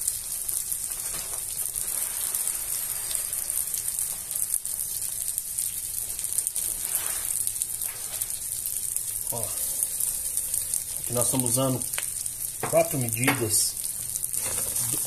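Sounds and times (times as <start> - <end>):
rice and garlic sizzling in fat: 0.0 - 15.0.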